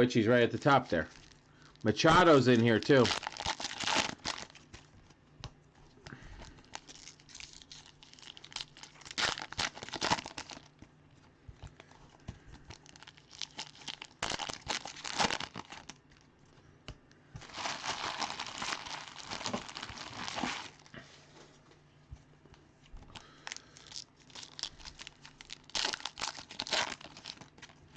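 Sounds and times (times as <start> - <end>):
foil wrappers crinkling and tearing: 1.0 - 4.9, 6.2 - 10.8, 12.6 - 16.0, 17.4 - 21.0, 23.1 - 27.9.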